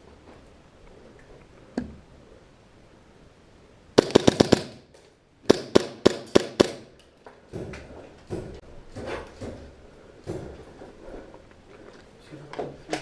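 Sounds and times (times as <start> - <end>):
airsoft gun shots: 4.0 - 4.9, 5.5 - 6.9.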